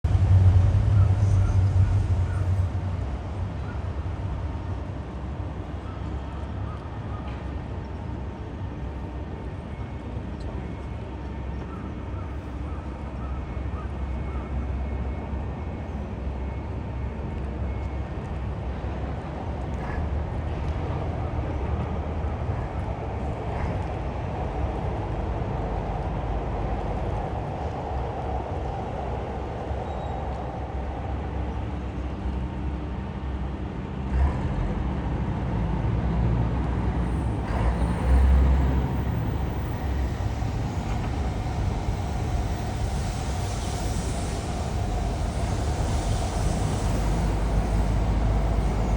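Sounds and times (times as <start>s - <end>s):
heavy vehicle engine rumbling: 0.0s - 10.3s, 30.2s - 48.9s.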